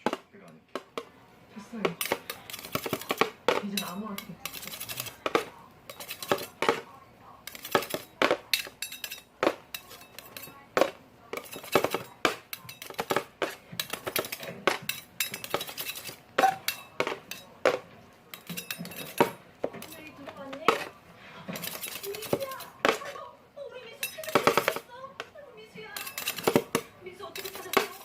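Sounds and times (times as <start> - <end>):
hard objects clinking together: 0.0 - 23.2, 23.9 - 28.0.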